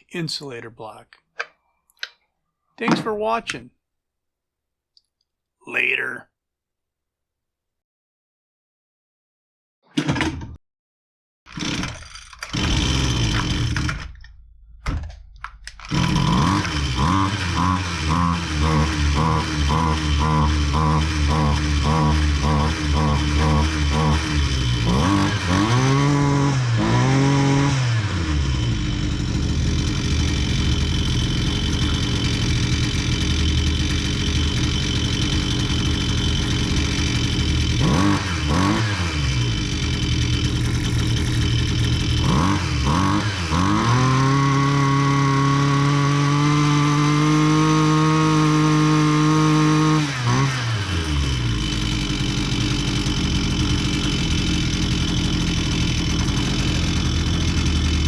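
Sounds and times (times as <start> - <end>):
string trimmer engine revving: 11.5 - 14.2, 15.7 - 58.0.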